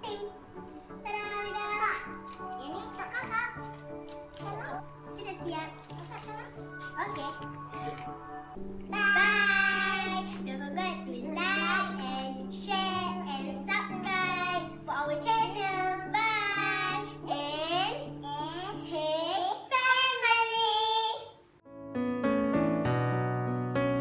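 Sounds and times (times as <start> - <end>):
electric piano tune: 0.0 - 19.0, 21.6 - 24.0
music with low held note: 0.0 - 19.3
child singing: 8.9 - 21.4.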